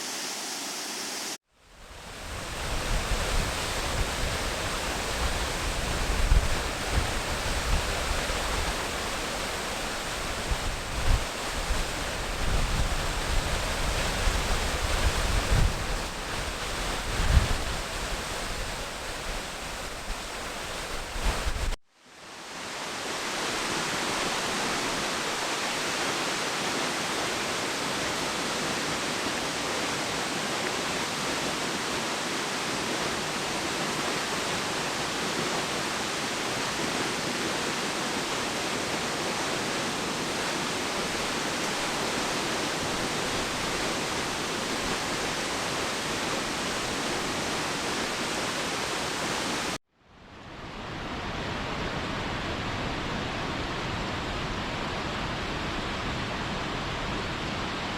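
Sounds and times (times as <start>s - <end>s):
waterfall rushing: 22.3s - 49.8s.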